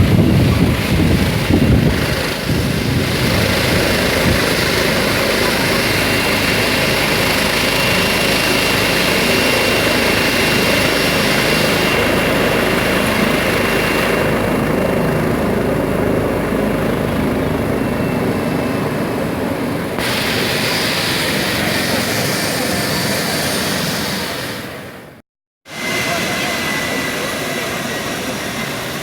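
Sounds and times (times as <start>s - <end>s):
helicopter rotor and engine: 0.0s - 29.0s.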